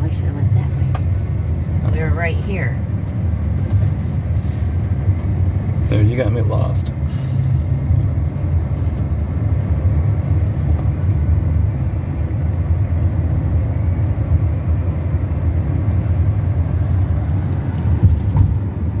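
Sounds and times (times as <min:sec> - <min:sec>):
car cabin road and engine rumble: 0:00.0 - 0:19.0.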